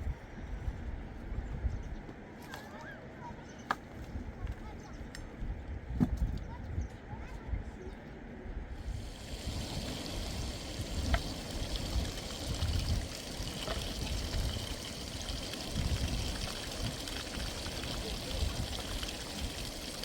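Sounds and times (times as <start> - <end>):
running water: 8.8 - 20.0.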